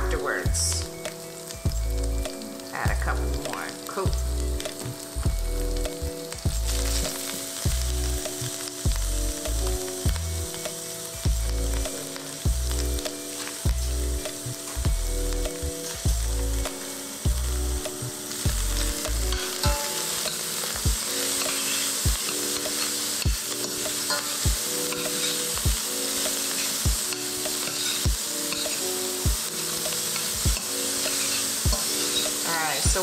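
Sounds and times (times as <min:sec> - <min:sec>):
food sizzling in oil: 0:00.0 - 0:33.0
slow beat background music: 0:00.0 - 0:33.0
spoon stirring in a pan: 0:19.3 - 0:32.6.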